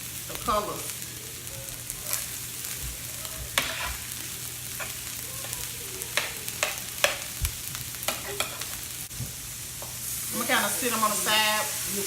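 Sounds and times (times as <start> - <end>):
fried rice sizzling on grill: 0.0 - 12.0
spatula scraping grill: 1.7 - 9.1.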